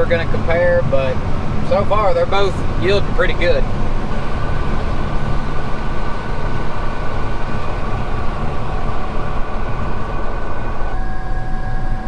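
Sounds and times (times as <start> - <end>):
combine harvester rumble: 0.0 - 12.0
high machine whine: 0.0 - 12.0.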